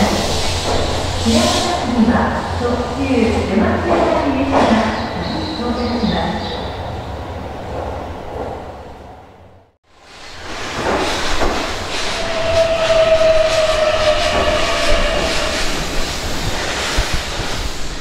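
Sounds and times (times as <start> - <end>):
train wheels clicking over rail joints: 0.2 - 1.7, 10.2 - 18.0.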